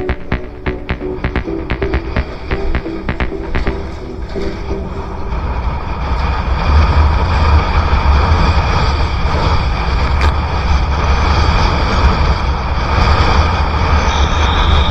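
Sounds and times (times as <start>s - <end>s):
strong wind buffeting microphone: 4.2s - 14.9s.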